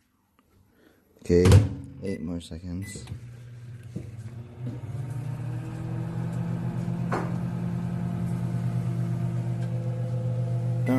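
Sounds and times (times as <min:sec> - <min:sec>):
microwave oven humming: 0:02.6 - 0:10.9.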